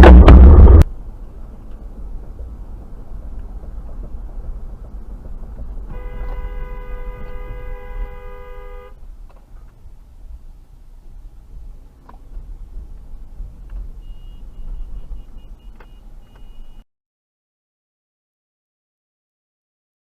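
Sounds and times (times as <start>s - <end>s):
low road rumble: 0.0s - 16.8s
car horn blast: 5.9s - 9.0s.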